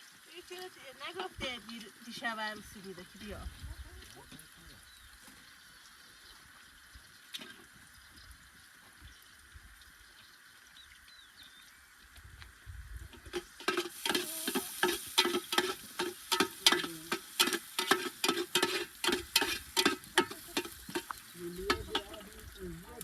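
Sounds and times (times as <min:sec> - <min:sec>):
spoon stirring in metal pot: 0:13.2 - 0:22.6.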